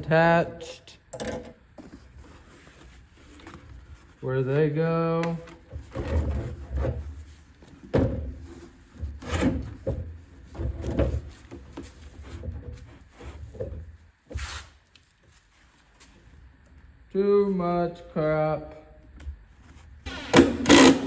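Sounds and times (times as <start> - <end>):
knocks and clicks of straps: 20.4 - 21.0.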